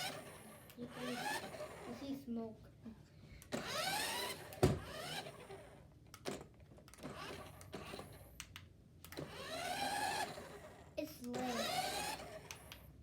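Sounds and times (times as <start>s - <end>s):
electric motor whining: 11.4s - 12.6s.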